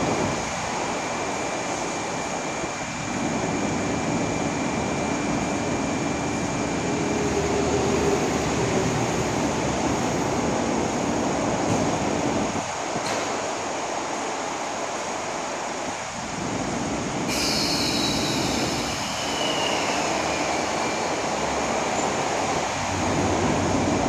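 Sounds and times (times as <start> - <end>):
train rumble and hiss: 0.0 - 24.0
high-pitched squeal sliding down: 17.3 - 22.0.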